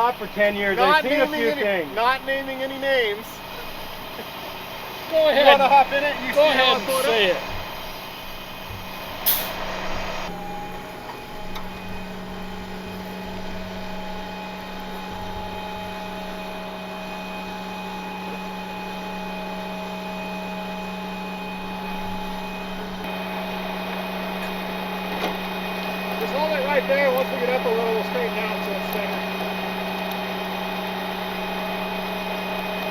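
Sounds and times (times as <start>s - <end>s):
hydraulic winch whine: 0.0s - 32.9s
short sharp burst: 9.1s - 10.0s.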